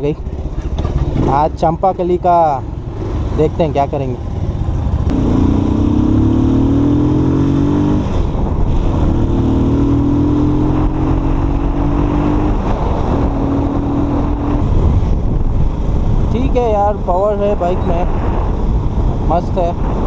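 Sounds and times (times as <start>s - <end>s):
motorcycle engine accelerating: 0.0s - 20.0s
wind noise: 4.4s - 20.0s.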